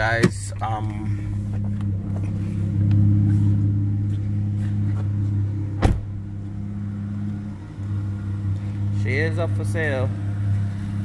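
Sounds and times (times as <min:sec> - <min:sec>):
car engine idling: 0:00.0 - 0:11.0
sharp thump: 0:05.8 - 0:06.2.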